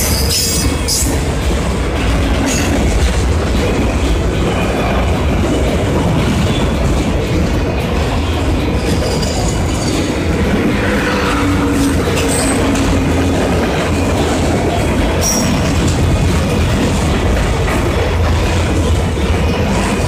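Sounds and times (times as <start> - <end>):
train wheels squealing: 0.0 - 1.2, 8.8 - 12.8, 15.2 - 15.7
freight train rumbling past: 0.0 - 20.0.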